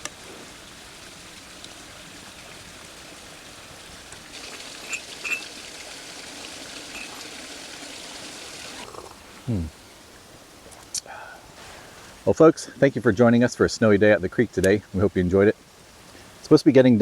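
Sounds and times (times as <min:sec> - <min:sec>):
creek flowing: 0:00.0 - 0:10.7.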